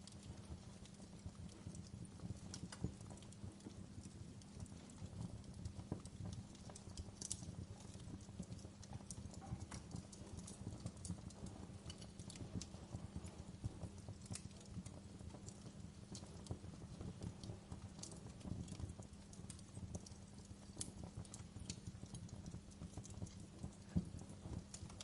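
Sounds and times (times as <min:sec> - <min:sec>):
low rumble of flames: 0:00.0 - 0:25.0
wood fire crackling: 0:00.0 - 0:25.0.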